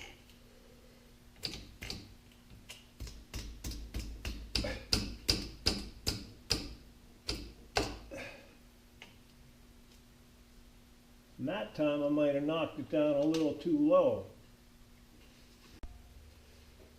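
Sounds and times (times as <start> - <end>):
small hammer tapping metal: 3.0 - 8.0.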